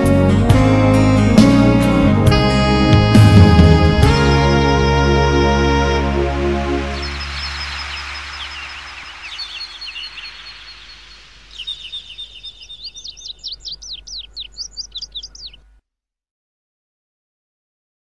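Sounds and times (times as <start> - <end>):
music track: 0.0 - 11.2
birds chirping: 4.0 - 15.8.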